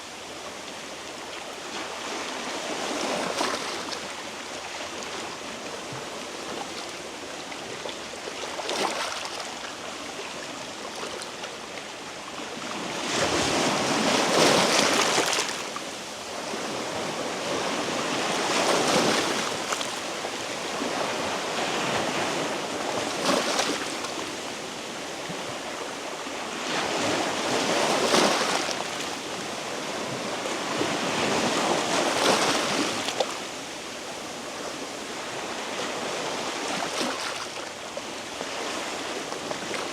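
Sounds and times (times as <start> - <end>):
waves washing over rocks: 12.8 - 24.2, 26.4 - 33.5.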